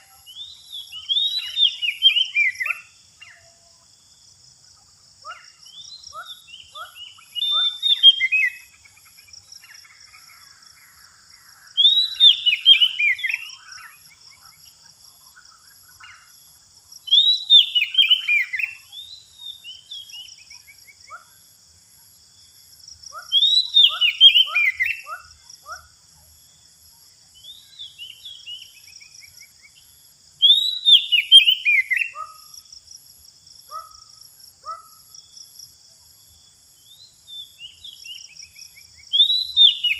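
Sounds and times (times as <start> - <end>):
magpie-robin calling: 23.1 - 25.8, 39.2 - 39.9.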